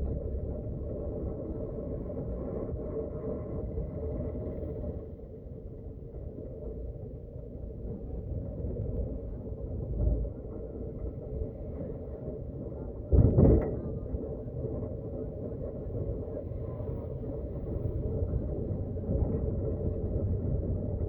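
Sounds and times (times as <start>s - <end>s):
road vehicle rumble: 0.0s - 5.0s, 13.1s - 21.0s.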